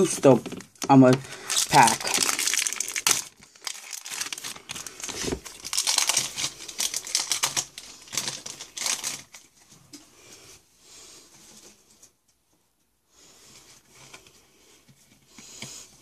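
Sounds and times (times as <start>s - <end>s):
foil wrapper crinkling: 0.4s - 9.6s.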